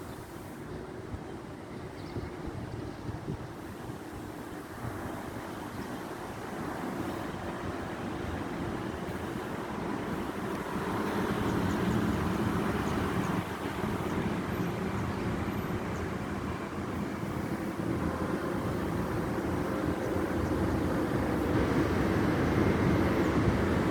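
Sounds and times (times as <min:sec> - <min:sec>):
vehicle engine and road rumble: 0:00.0 - 0:23.9.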